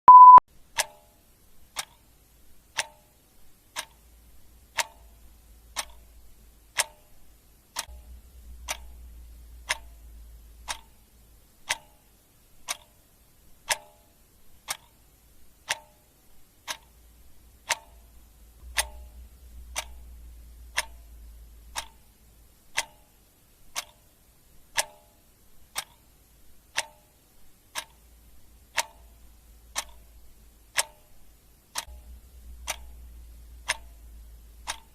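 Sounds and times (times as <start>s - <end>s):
short loud beep: 0.0s - 0.4s
clock ticking: 0.1s - 34.9s.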